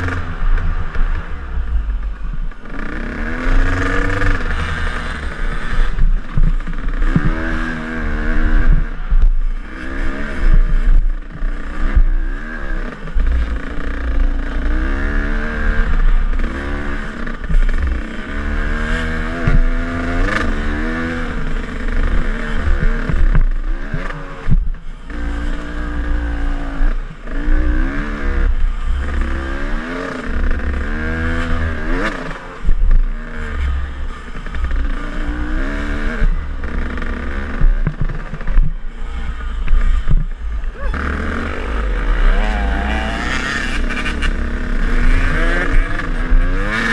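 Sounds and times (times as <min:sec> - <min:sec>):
dirt bike engine revving: 0:00.0 - 0:01.7, 0:02.5 - 0:46.9
low thumps and rumble: 0:03.4 - 0:07.8, 0:19.3 - 0:20.4, 0:21.4 - 0:25.4, 0:36.2 - 0:46.6.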